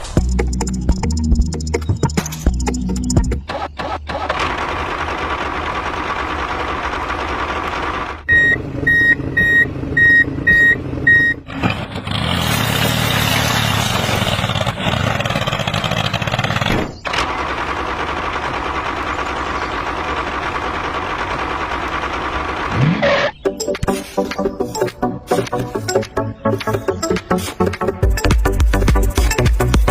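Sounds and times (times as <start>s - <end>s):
vehicle reversing alarm beeping: 8.3s - 11.5s
loud rough noise: 11.5s - 23.3s.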